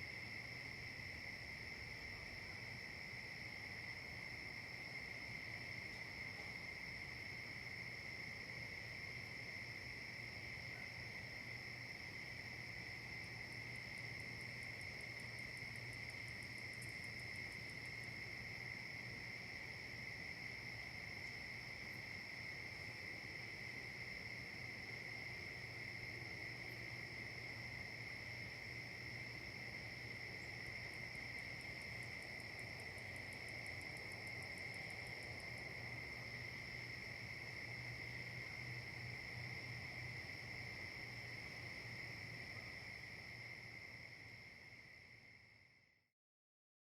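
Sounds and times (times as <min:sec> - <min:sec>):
insects trilling: 0:08.8 - 0:45.4.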